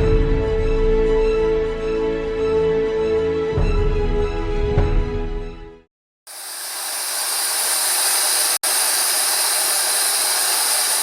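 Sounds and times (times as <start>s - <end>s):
steam locomotive hissing: 6.3s - 11.0s.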